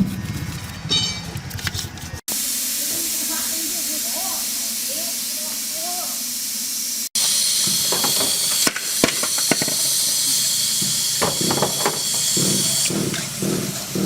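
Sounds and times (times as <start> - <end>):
loud spraying hiss: 2.3 - 14.0.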